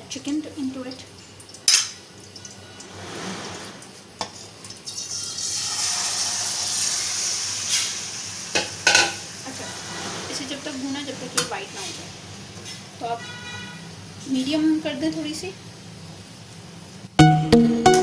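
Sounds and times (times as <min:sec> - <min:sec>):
chicken sizzling in oil: 0:00.2 - 0:12.8.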